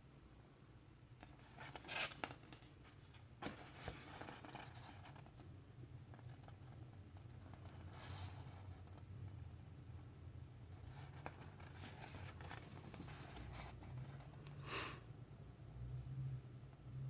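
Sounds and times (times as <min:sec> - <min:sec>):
paper rustling: 0:01.2 - 0:05.4, 0:10.9 - 0:14.2.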